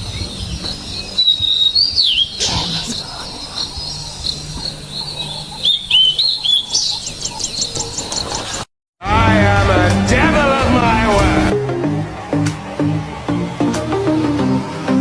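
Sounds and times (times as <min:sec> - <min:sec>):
wild birds chirping: 0:00.0 - 0:08.7.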